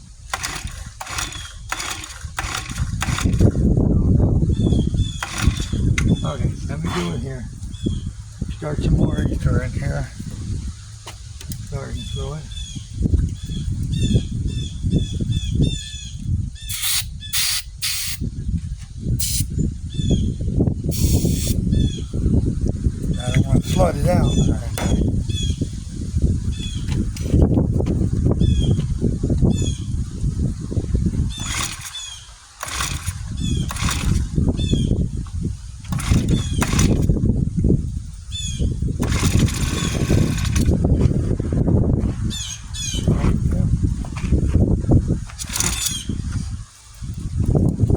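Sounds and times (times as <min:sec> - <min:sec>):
pull-cord starter whirring: 0:00.0 - 0:03.9, 0:04.5 - 0:14.0, 0:16.7 - 0:19.5, 0:20.9 - 0:21.9, 0:23.2 - 0:25.5, 0:30.9 - 0:37.3, 0:38.4 - 0:47.8
low engine rumble: 0:00.0 - 0:17.1, 0:18.6 - 0:47.9
bird chirping: 0:04.4 - 0:27.2
aerosol spray hissing bursts: 0:16.7 - 0:18.2, 0:19.2 - 0:19.5, 0:20.9 - 0:21.6.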